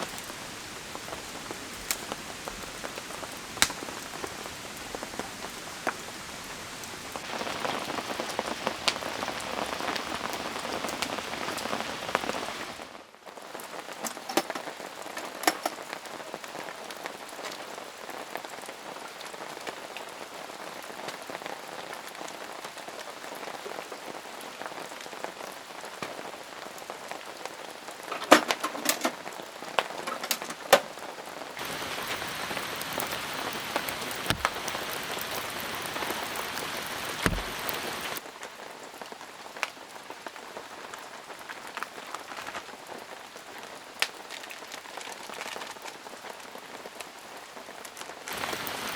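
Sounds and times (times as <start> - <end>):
heavier raindrops landing: 0.0 - 13.0, 31.6 - 38.2, 48.3 - 48.9
steady rain falling: 0.0 - 48.9.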